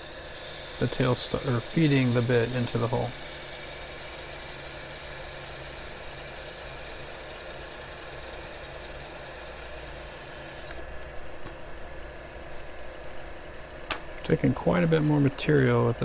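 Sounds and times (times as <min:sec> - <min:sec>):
drill squealing: 0:00.0 - 0:10.8
lathe running: 0:00.0 - 0:10.8.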